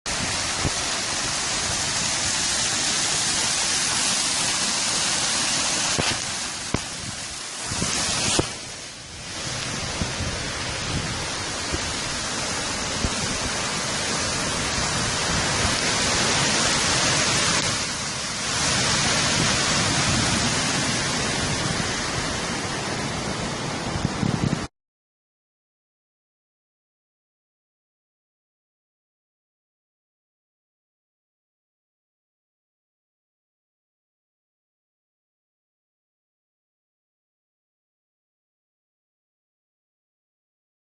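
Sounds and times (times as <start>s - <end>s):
heavy rain pouring: 0.1s - 24.7s.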